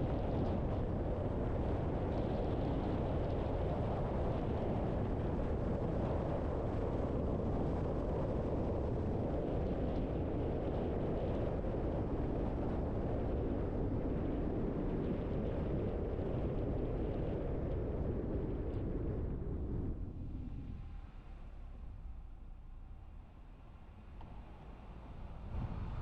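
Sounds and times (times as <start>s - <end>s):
tyre and road noise: 20.0s - 26.0s
car engine: 20.2s - 26.0s.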